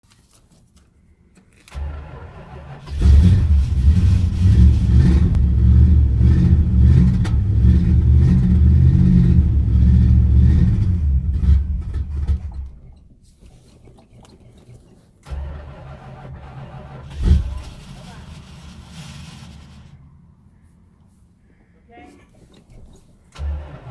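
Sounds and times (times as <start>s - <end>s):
car engine cranking: 1.4s - 13.2s, 15.2s - 20.4s, 22.4s - 23.9s
car engine running unevenly: 1.7s - 12.9s, 15.2s - 20.5s, 23.3s - 23.9s.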